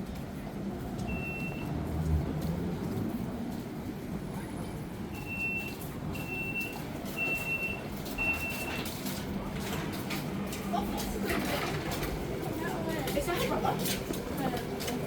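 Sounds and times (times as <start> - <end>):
electronic warning beeps: 1.1 - 1.7, 5.1 - 8.8.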